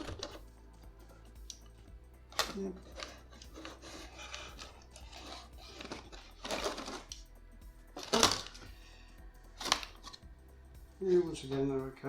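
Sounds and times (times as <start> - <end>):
plastic parts clicking and rattling: 0.0 - 0.5, 2.3 - 7.3, 8.0 - 8.8, 9.6 - 10.2
background music: 0.0 - 12.0.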